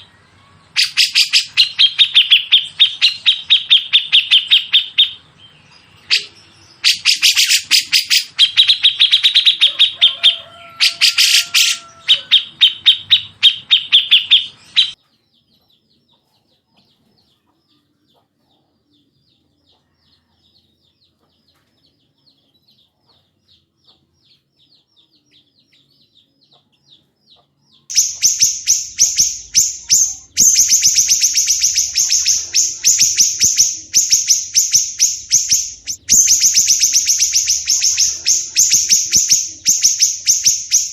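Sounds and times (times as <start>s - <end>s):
songbirds calling: 0.0s - 40.9s
harsh rapid high bird notes: 27.9s - 40.9s.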